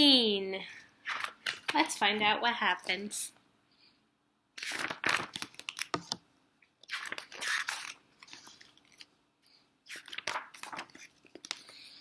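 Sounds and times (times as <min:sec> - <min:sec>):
book pages rustling: 0:01.0 - 0:01.9, 0:04.6 - 0:06.2, 0:06.9 - 0:09.1, 0:09.9 - 0:11.8.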